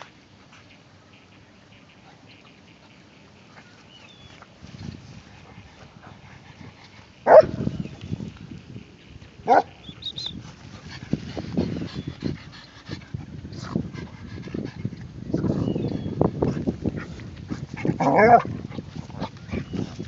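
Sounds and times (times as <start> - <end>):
dog barking: 7.3 - 7.6, 9.5 - 9.8.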